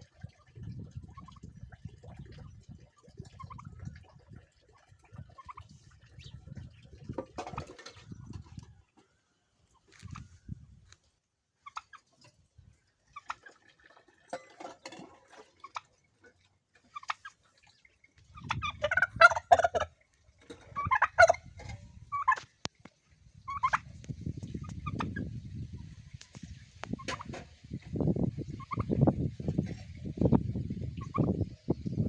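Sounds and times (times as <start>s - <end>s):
turkey gobbling: 3.2s - 3.8s, 5.1s - 6.2s, 11.6s - 12.1s, 13.1s - 13.6s, 16.9s - 17.4s, 18.4s - 20.0s, 20.7s - 22.5s, 23.5s - 23.9s, 24.6s - 25.2s, 26.2s - 27.3s, 28.6s - 28.9s, 31.0s - 31.3s.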